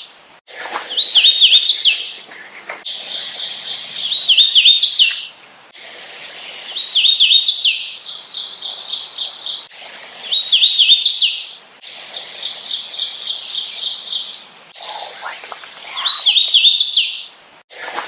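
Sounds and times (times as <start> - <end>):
bird song whistled notes: 0.9 - 2.2, 2.9 - 5.4, 6.4 - 11.6, 12.4 - 14.4, 15.9 - 17.4.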